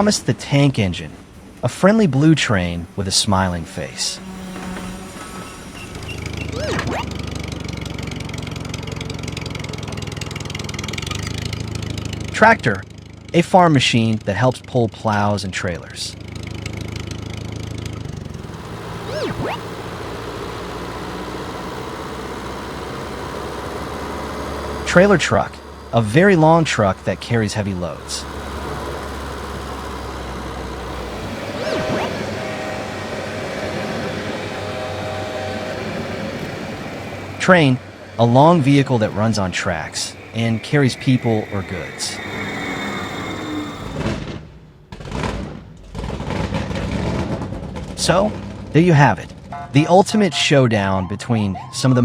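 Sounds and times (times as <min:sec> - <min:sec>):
train running: 0:00.0 - 0:12.7, 0:15.9 - 0:44.9
tractor engine droning: 0:00.0 - 0:52.0
swooping sound: 0:06.0 - 0:07.2, 0:18.4 - 0:20.3, 0:30.6 - 0:44.4.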